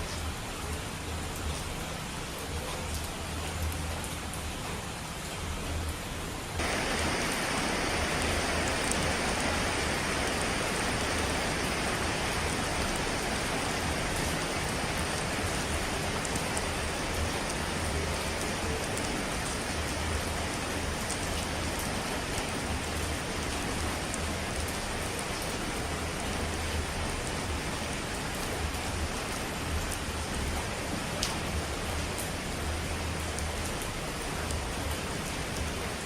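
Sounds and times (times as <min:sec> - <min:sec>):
hiss of falling water: 0:06.6 - 0:25.9.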